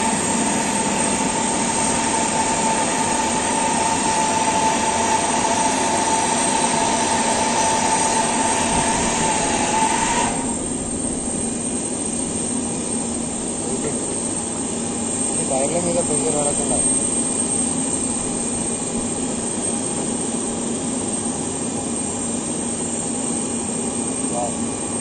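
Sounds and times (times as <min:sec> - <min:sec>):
jet turbine whine and rush: 0:00.0 - 0:25.0.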